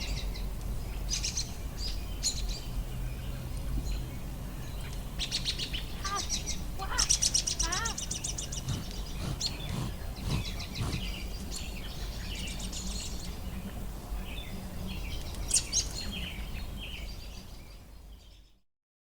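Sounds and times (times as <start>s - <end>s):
small birds chirping: 4.8s - 13.5s.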